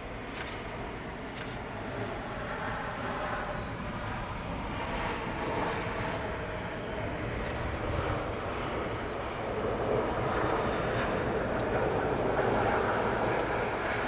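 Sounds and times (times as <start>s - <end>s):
jet engines of landing airliner: 0.0s - 14.0s
sharp clicks: 0.3s - 0.6s, 1.4s - 1.6s, 13.2s - 13.5s.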